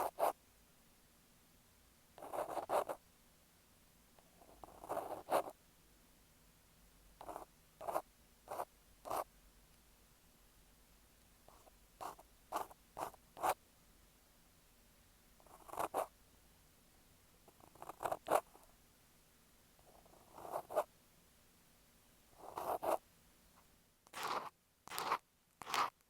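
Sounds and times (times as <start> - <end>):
ear pick scraping microphone: 24.1 - 25.9.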